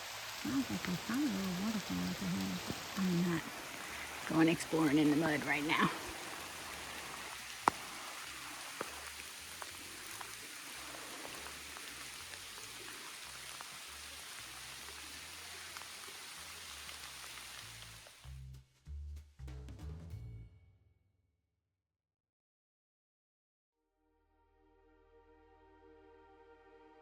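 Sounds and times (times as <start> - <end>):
close raindrop hits: 0.0 - 18.4
rain falling through forest: 0.0 - 18.5.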